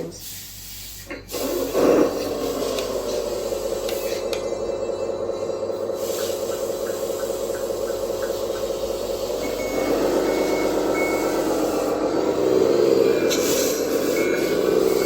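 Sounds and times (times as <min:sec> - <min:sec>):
electronic truck engine sound: 0:01.4 - 0:15.0
reversing beeper: 0:03.0 - 0:07.0, 0:07.8 - 0:15.0.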